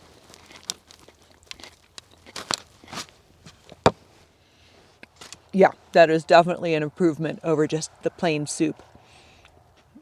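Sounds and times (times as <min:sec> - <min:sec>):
soft chewing: 0:00.0 - 0:05.9.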